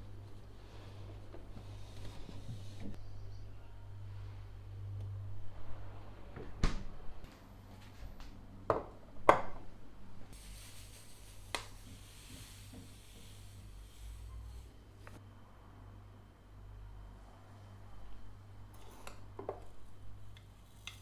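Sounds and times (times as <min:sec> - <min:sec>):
faint steady hiss: 0:10.3 - 0:15.3.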